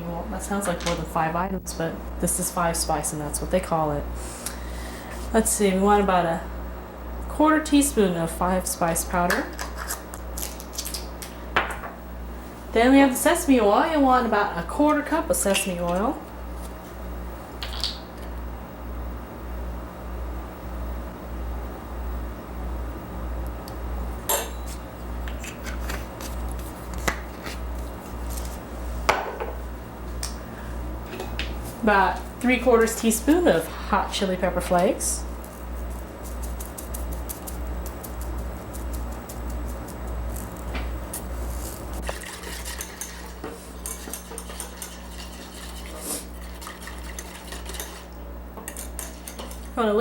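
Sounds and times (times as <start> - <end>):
steady low hum: 0.0 - 50.0
utensil clinking and scraping bowl: 41.1 - 49.8.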